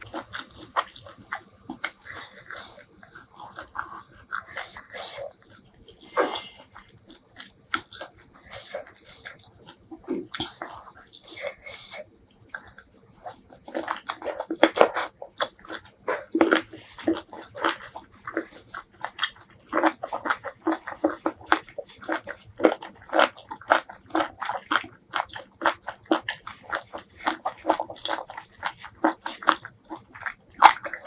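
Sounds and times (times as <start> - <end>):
person chewing wet food: 0.0 - 31.0.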